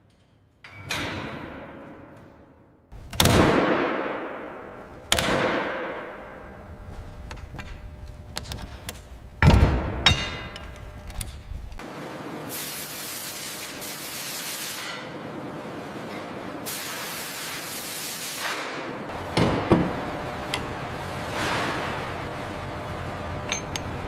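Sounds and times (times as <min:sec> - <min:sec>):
hissing spray: 0:12.5 - 0:15.0, 0:16.6 - 0:18.8.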